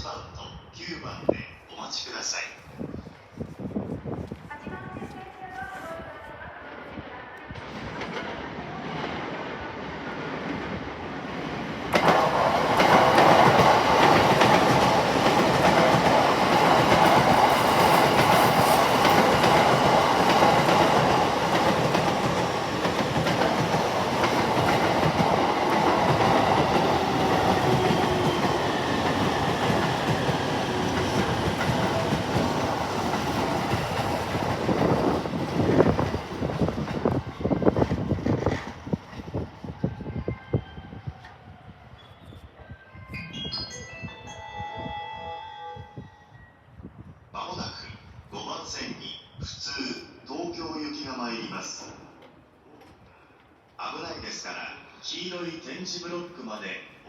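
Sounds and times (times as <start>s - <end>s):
electric train passing: 6.5s - 40.2s, 43.2s - 47.0s.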